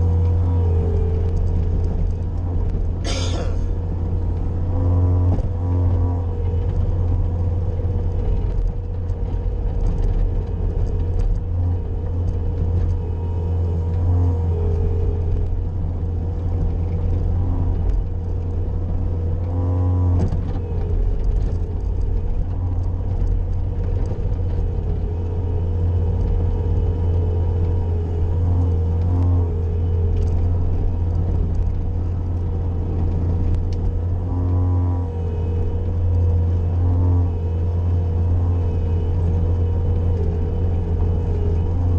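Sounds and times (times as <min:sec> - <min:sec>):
constant whine: 0:00.0 - 0:41.9
loader diesel engine running: 0:00.0 - 0:41.9
short pitched sounds: 0:03.0 - 0:03.8.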